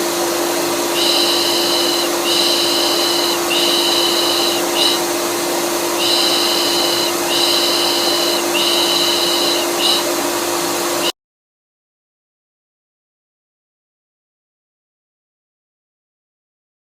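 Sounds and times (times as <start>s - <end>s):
vacuum cleaner running: 0.0s - 11.1s.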